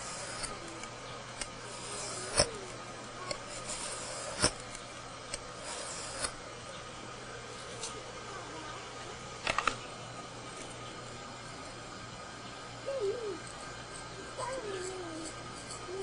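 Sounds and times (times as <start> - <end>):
metal scraping on a file: 0.0 - 0.8, 1.4 - 6.4, 13.5 - 16.0.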